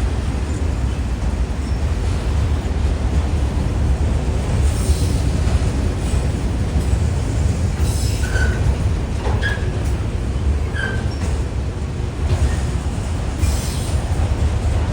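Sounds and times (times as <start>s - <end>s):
high wheel squeals: 7.8s - 9.9s, 10.6s - 11.4s.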